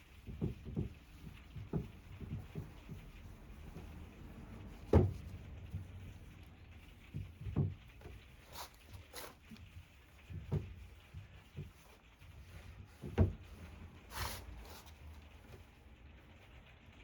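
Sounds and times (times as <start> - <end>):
light wooden knocks: 0.0 - 15.8
dull thump: 0.2 - 6.2, 10.2 - 15.0
drawer scraping: 7.0 - 15.7.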